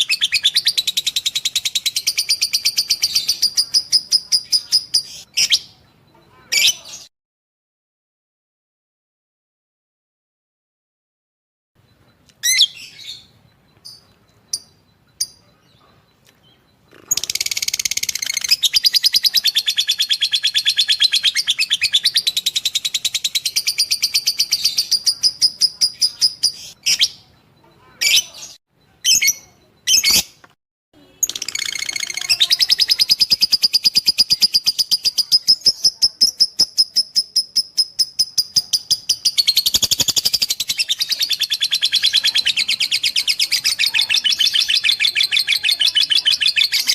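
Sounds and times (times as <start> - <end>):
bird chirping rapidly: 0.0 - 5.9, 12.4 - 30.4, 31.0 - 46.9
sharp bird calls: 0.0 - 7.1.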